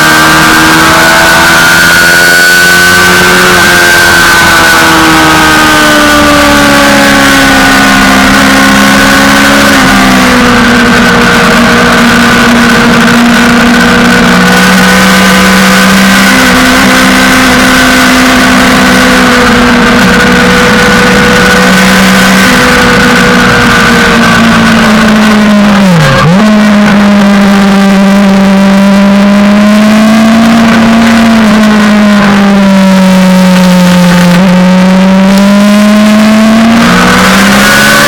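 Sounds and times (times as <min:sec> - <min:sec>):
motorcycle engine at high revs: 0:00.0 - 0:38.0.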